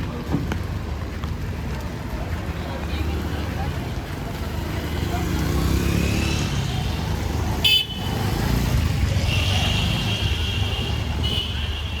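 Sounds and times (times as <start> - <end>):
traffic engine rumble: 0.0 - 12.0
car horn toot: 7.6 - 8.2.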